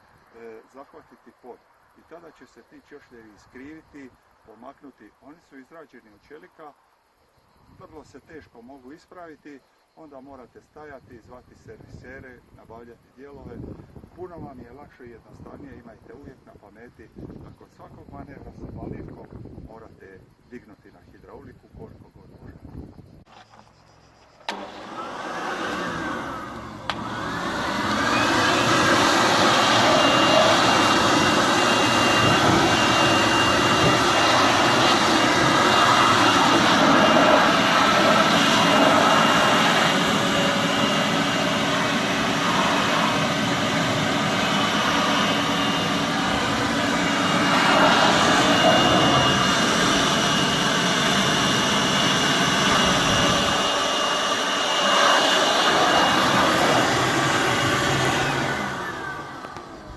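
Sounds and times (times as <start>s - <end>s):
faint high whine: 0.0s - 59.9s
tractor diesel engine running: 25.8s - 59.9s.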